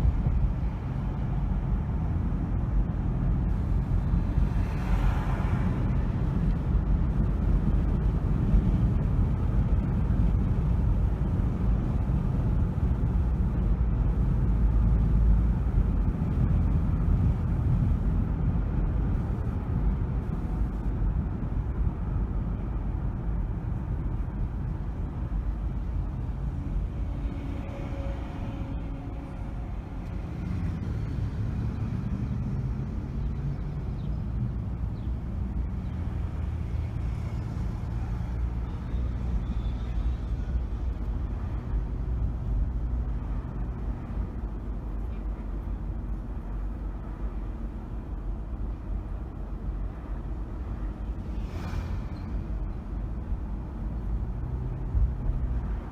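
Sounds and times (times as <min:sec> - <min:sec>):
car road and engine rumble: 0:00.0 - 0:55.9
faint steady tones: 0:23.9 - 0:51.4.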